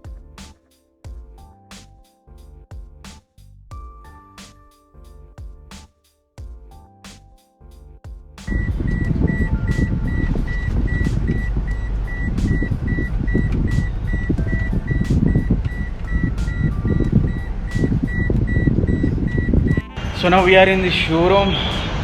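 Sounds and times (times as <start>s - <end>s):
high electronic beeps: 8.5s - 22.0s
vehicle rumble: 8.5s - 22.0s.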